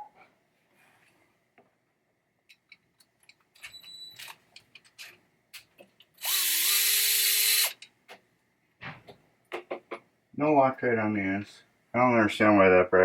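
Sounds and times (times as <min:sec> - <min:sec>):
electric screwdriver whirring: 0:06.2 - 0:07.8.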